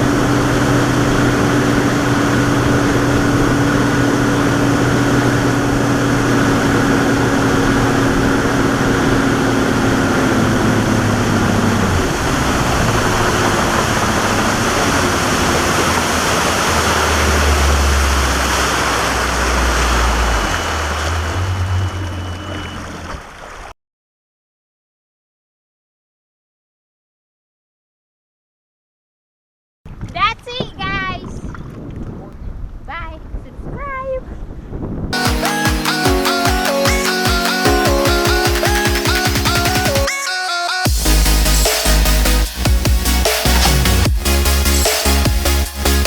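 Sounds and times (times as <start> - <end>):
boat motor running: 0.0 - 23.4, 40.7 - 46.0
rushing water: 0.8 - 23.7
wind noise: 29.9 - 35.2.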